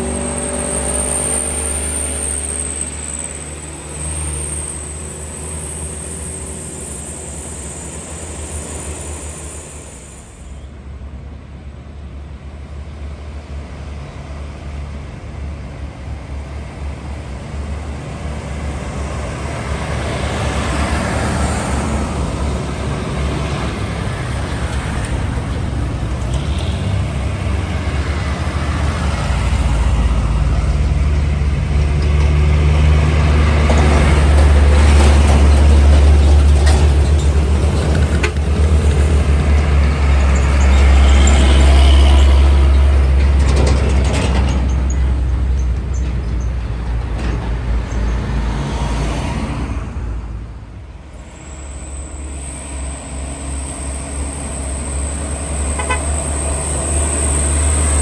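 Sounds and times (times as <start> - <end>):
traffic noise: 0.0 - 58.0
diesel truck engine labouring: 13.4 - 58.0.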